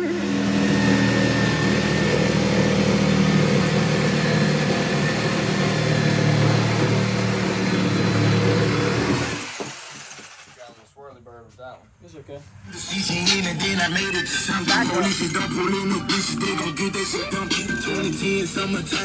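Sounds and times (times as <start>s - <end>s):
engine running steadily: 0.0s - 9.2s.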